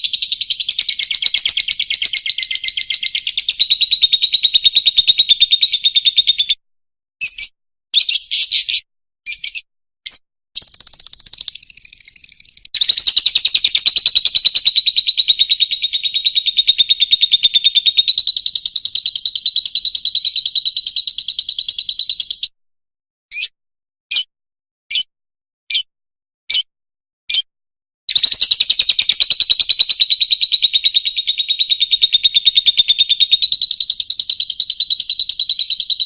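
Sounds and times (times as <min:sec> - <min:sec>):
bird buzzy chatter: 0:00.0 - 0:06.2, 0:10.6 - 0:20.6, 0:28.1 - 0:36.0.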